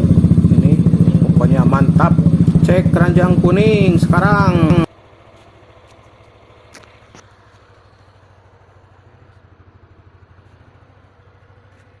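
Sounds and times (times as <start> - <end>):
motorcycle idling: 0.0 - 12.0.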